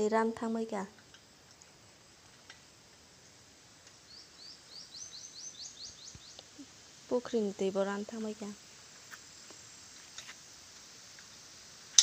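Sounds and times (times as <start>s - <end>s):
bird calling faintly: 3.9s - 8.4s.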